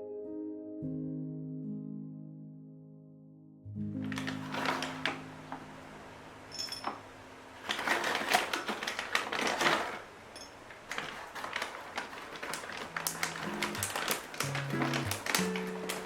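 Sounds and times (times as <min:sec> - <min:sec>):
soft background music: 0:00.0 - 0:06.3, 0:12.6 - 0:16.0
rapid small clicks and taps: 0:11.5 - 0:16.0.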